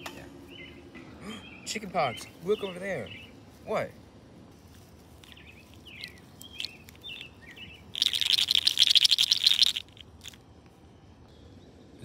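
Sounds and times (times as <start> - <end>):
small birds chirping: 0.4 - 3.7, 5.0 - 10.4.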